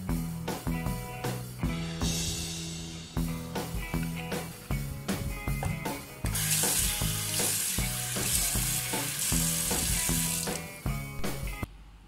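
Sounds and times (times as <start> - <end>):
guitar music: 0.0 - 11.6
water splashing into a sink: 6.3 - 10.7.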